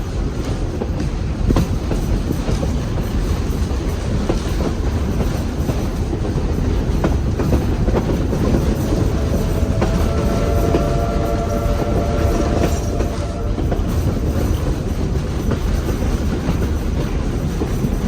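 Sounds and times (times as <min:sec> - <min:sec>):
train rumbling on track: 0:00.0 - 0:18.0
train horn: 0:07.6 - 0:16.8.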